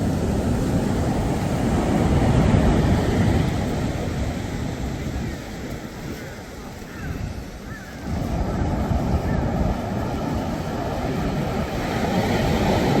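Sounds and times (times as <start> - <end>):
sea waves surging onto shore: 0.0 - 13.0
wind rumbling on microphone: 0.0 - 13.0.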